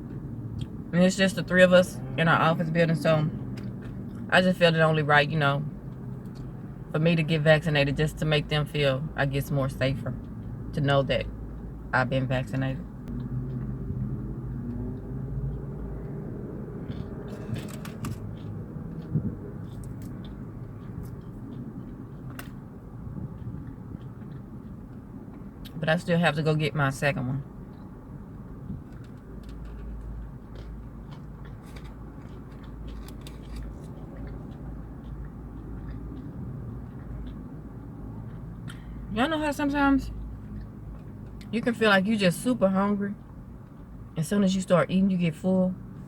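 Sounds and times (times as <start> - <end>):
steady low hum: 0.0 - 46.0
crunching and chewing chicken wings: 13.1 - 25.8, 27.6 - 39.0, 43.2 - 44.1.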